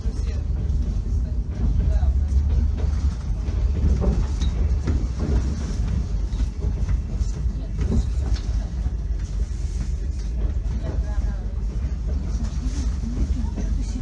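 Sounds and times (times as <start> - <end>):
train rumble from inside carriage: 0.0 - 14.0
train wheel knocks: 0.2 - 9.4.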